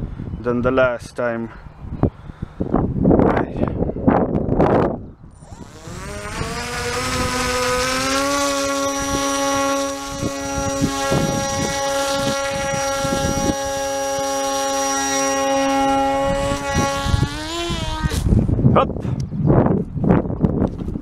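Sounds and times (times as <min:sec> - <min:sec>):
electric motor and propeller whine: 0:04.1 - 0:18.6.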